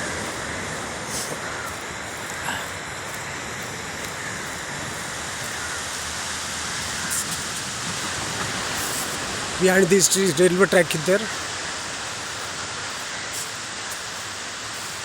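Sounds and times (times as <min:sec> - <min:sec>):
sea surf washing on beach: 0:00.0 - 0:15.0.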